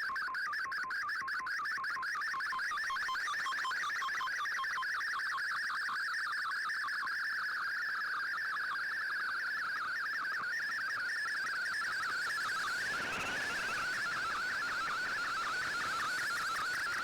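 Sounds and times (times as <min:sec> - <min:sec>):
warbling radio data signal: 0:10.7 - 0:17.0.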